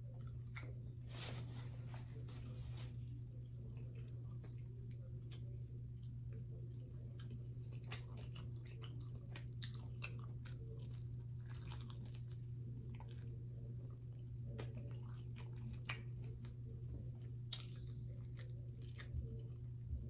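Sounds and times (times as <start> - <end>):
chewing crispy fried food: 0.0 - 20.0
steady low hum: 0.0 - 20.0.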